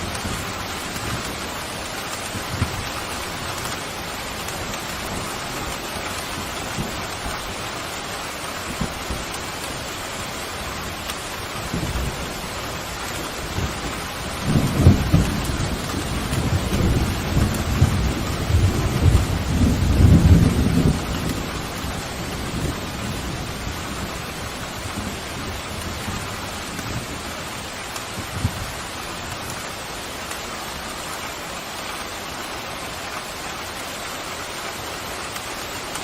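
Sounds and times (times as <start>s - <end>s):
heavy rain: 0.0s - 36.0s
thunder rumbling: 10.6s - 30.4s.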